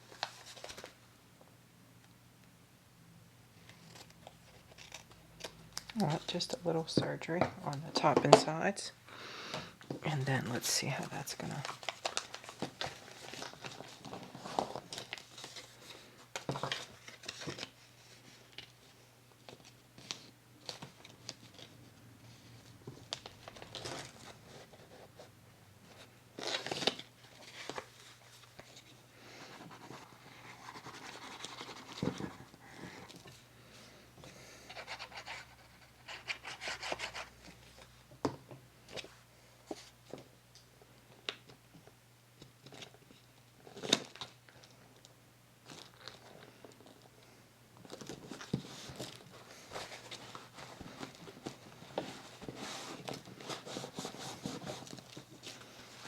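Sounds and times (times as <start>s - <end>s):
paper rustling: 0.0s - 1.0s.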